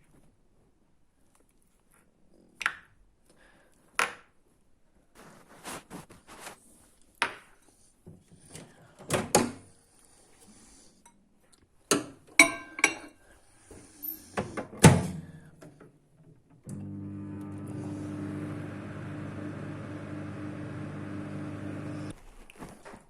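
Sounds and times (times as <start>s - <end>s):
kitchen utensils clattering: 12.4s - 13.2s
microwave oven humming: 16.7s - 22.1s.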